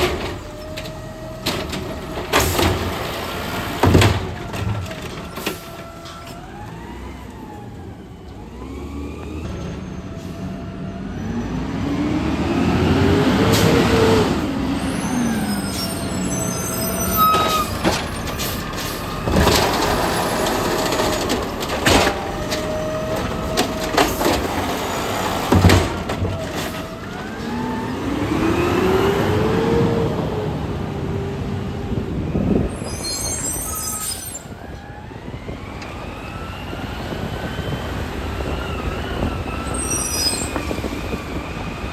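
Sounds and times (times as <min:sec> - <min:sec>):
garbage truck engine revving: 0:00.0 - 0:33.5.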